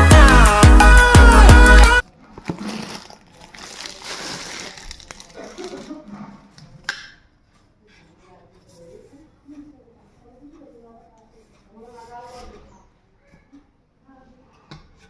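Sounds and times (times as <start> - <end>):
background music with a beat: 0.0 - 2.0
parcel rustling and handling: 2.3 - 6.5.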